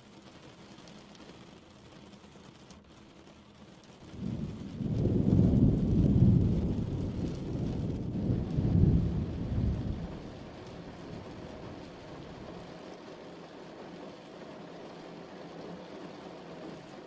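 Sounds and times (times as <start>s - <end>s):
steady rain falling: 0.0s - 17.0s
low roll of thunder: 4.0s - 12.6s.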